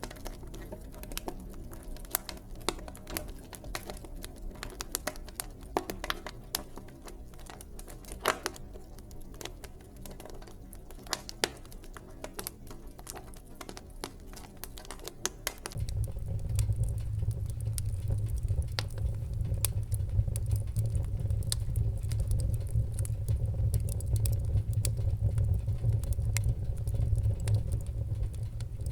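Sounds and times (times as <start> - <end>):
wood fire crackling: 0.0 - 28.9
low rumble: 15.8 - 28.9.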